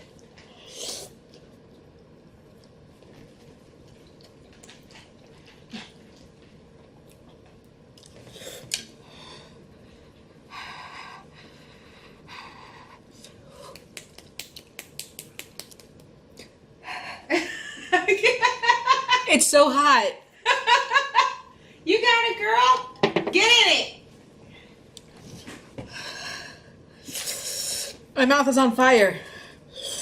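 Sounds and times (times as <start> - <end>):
person chewing with wet clicks: 1.2 - 9.0, 13.1 - 16.5.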